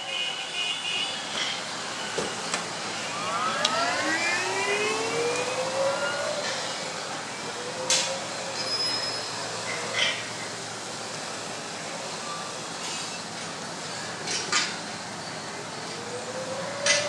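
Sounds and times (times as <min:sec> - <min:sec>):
road and wind noise: 0:01.2 - 0:08.6.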